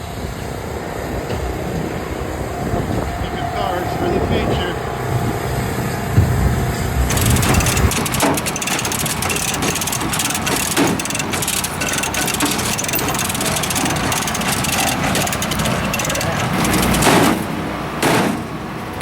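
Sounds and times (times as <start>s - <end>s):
vehicle engine running: 3.2s - 19.0s
clatter: 7.1s - 19.0s.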